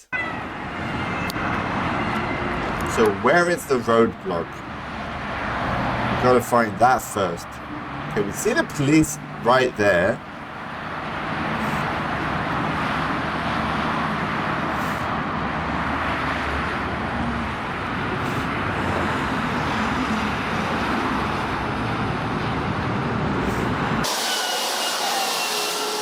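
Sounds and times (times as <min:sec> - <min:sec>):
motorway traffic noise: 0:00.0 - 0:26.0
loud hiss with whistling tones: 0:24.0 - 0:26.0.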